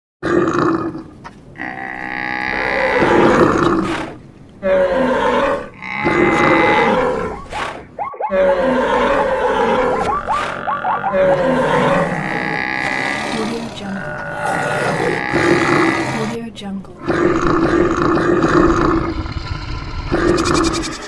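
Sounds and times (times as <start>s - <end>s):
animal calls and roars: 0.2s - 16.4s, 17.0s - 21.0s
high squeaky animal calls: 5.7s - 16.3s.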